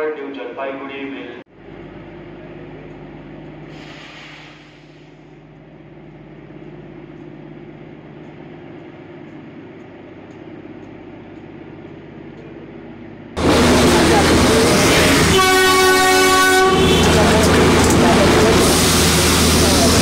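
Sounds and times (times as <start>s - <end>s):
train mechanical hum: 0.1s - 20.0s
brief hiss: 3.7s - 5.3s.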